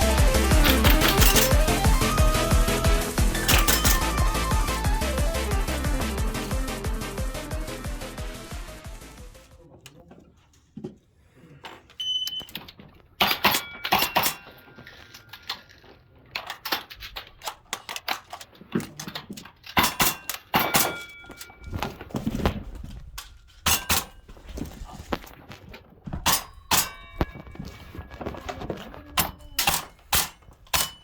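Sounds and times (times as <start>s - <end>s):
metallic ring of targets: 0.0s - 6.6s, 13.2s - 15.7s, 19.7s - 21.7s, 23.6s - 24.3s, 26.2s - 28.4s, 29.2s - 31.0s
airsoft guns firing: 0.0s - 7.4s.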